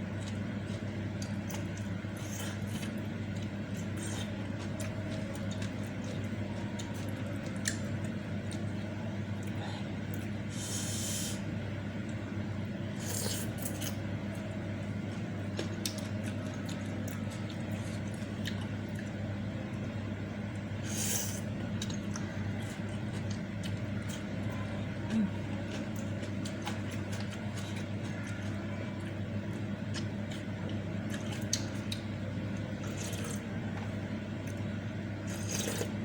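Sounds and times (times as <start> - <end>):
steady low hum: 0.0 - 36.0
wet slurps: 35.3 - 36.0.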